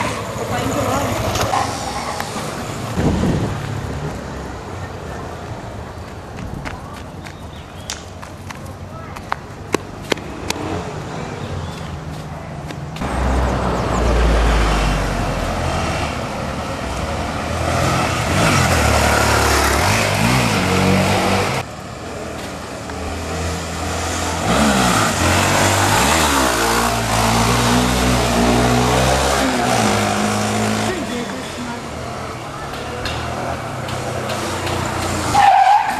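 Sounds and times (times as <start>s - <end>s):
motorcycle engine revving: 17.4s - 21.6s, 23.1s - 31.3s.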